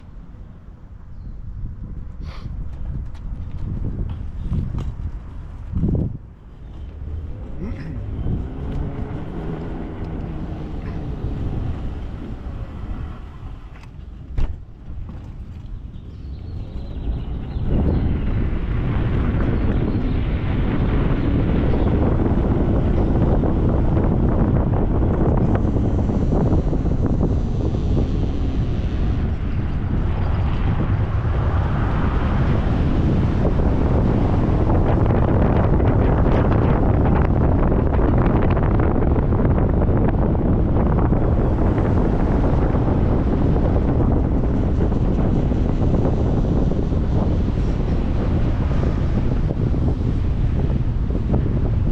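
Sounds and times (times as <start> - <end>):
wind buffeting microphone: 0.0 - 51.9
road vehicle rumble and hiss: 6.3 - 15.2, 16.4 - 36.7.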